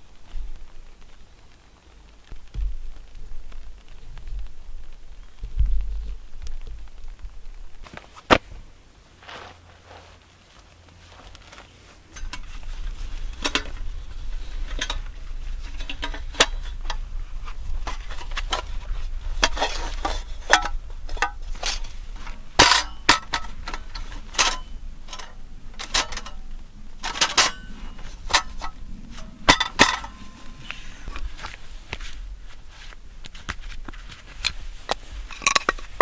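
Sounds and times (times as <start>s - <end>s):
low steady rumble: 0.0s - 36.0s
metal cookware clinking: 19.4s - 30.8s.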